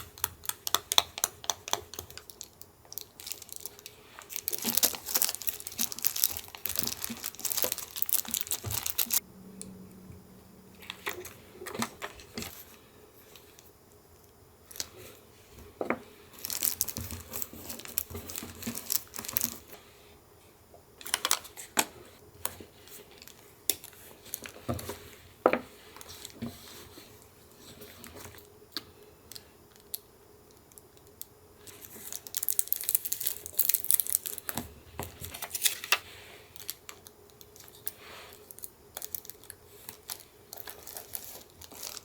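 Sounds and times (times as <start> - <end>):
paper rustling and tearing: 3.3 - 9.2.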